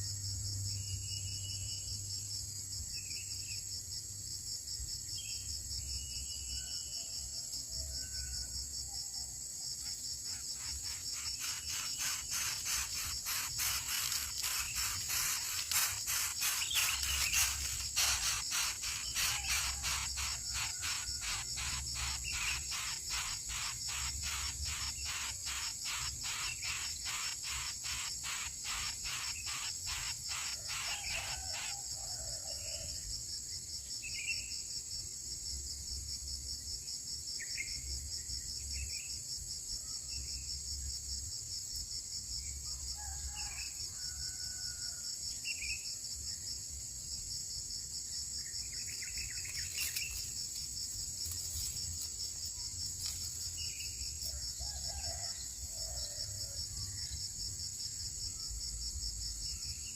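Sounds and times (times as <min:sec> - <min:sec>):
high-pitched insect chorus: 0:00.0 - 0:59.9
rapid repeated calls: 0:10.2 - 0:31.9.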